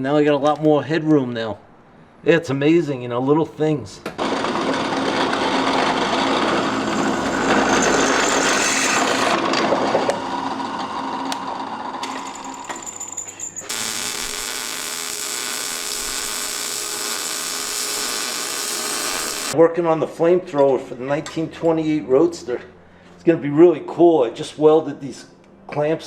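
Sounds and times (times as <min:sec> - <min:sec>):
power tool running: 0:04.2 - 0:09.4, 0:13.7 - 0:19.6.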